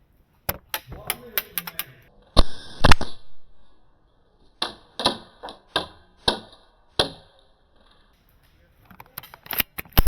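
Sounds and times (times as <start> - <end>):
airsoft gun shots: 2.4 - 3.4.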